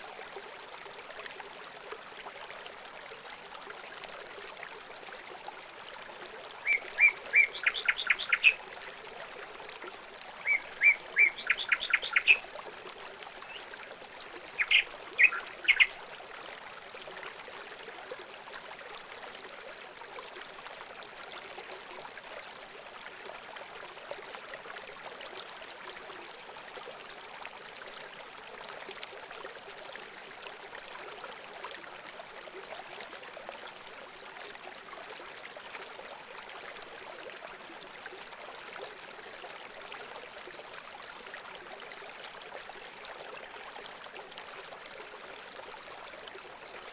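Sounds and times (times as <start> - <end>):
running water rushing: 0.0 - 46.9
songbird singing: 6.6 - 8.6, 10.4 - 12.4, 13.4 - 13.7, 14.6 - 16.0.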